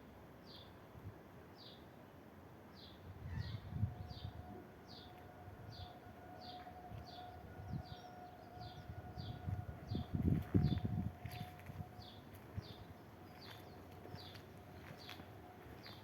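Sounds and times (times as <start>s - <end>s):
level crossing warning alarm: 4.1s - 12.8s.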